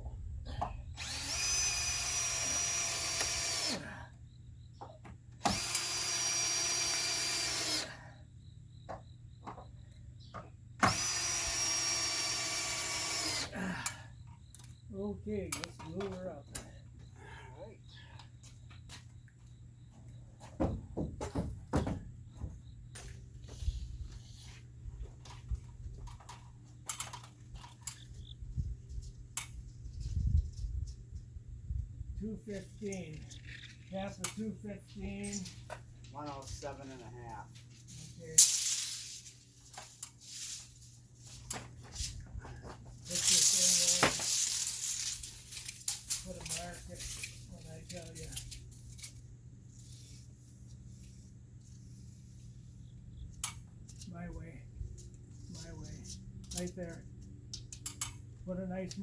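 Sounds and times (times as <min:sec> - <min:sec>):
tools and lumber clicking: 0:00.6 - 0:03.9, 0:04.8 - 0:08.0, 0:08.9 - 0:14.8, 0:15.5 - 0:16.7, 0:25.2 - 0:28.3, 0:32.9 - 0:34.6, 0:41.4 - 0:49.2, 0:55.0 - 0:58.3
power drill whining: 0:01.0 - 0:04.0, 0:05.4 - 0:08.0, 0:10.8 - 0:13.6.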